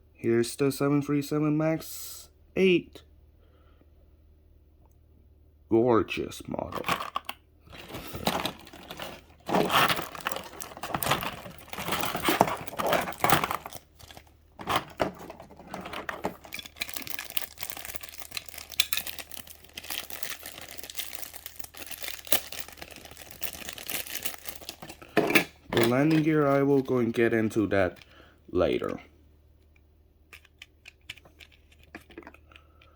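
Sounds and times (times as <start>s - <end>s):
packaging crinkling and rustling: 6.8s - 28.0s.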